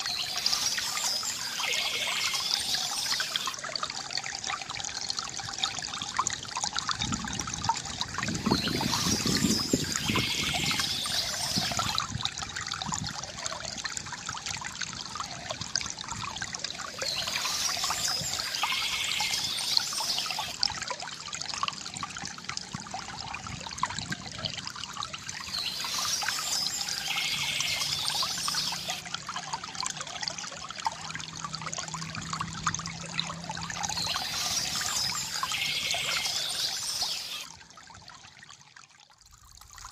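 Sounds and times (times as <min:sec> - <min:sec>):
bird singing: 0:00.0 - 0:03.5, 0:08.4 - 0:11.8, 0:17.0 - 0:20.6, 0:25.4 - 0:29.0, 0:33.8 - 0:37.5
stream trickling and splashing: 0:00.0 - 0:39.9.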